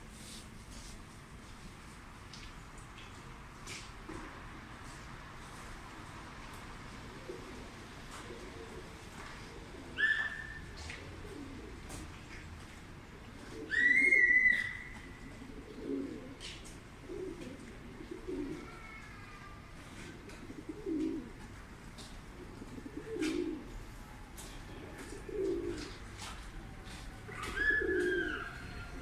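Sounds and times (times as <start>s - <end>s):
pigeons cooing: 6.9s - 19.2s, 20.0s - 23.9s, 24.7s - 26.4s, 27.3s - 29.0s.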